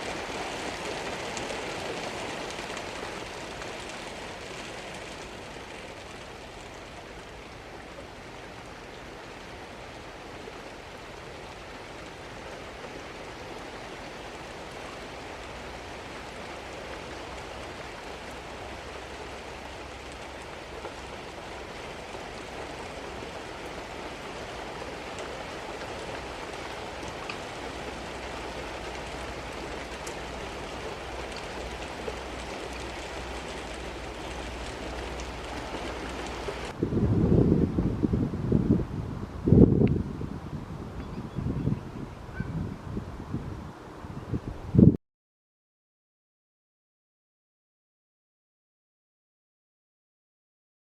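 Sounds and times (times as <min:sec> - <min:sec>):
steady rain falling: 0:00.0 - 0:36.8.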